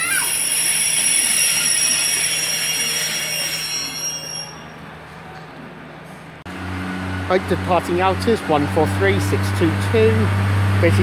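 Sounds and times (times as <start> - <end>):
train brakes squealing: 0.0 - 5.0.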